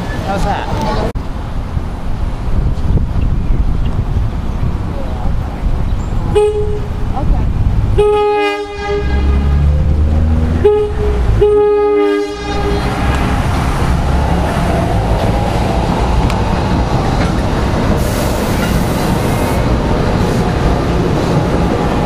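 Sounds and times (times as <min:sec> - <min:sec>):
train rumbling past: 0:00.0 - 0:22.0
train horn blasts: 0:06.3 - 0:06.9, 0:08.0 - 0:09.7, 0:10.6 - 0:13.3.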